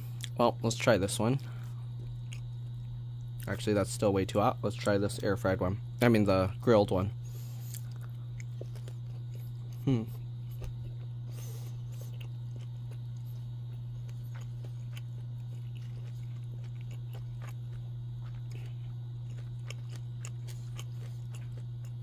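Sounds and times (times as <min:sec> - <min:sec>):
low hum: 0:00.0 - 0:22.0
person chewing: 0:00.2 - 0:00.4, 0:01.4 - 0:03.6, 0:07.4 - 0:22.0.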